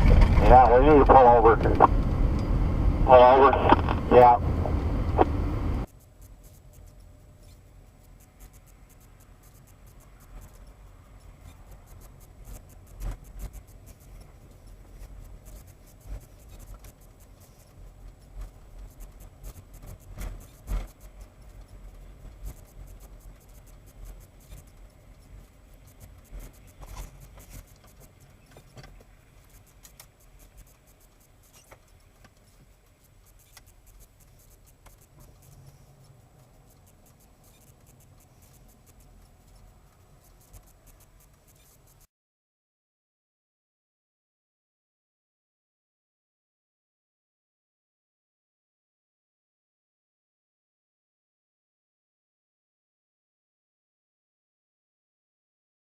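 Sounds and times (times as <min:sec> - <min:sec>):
vehicle rumble: 0:00.0 - 0:42.0.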